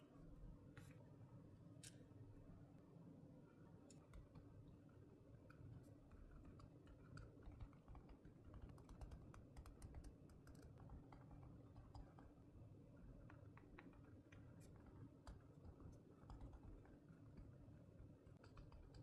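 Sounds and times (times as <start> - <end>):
small clicks and taps: 3.8 - 4.5, 5.4 - 12.4, 13.2 - 19.0.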